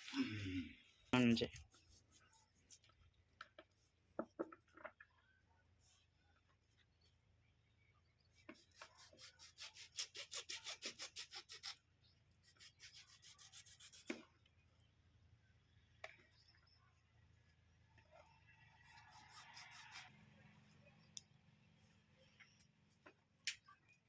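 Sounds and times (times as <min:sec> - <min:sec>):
faint rhythmic scraping strokes: 0:12.4 - 0:14.3, 0:15.8 - 0:24.0.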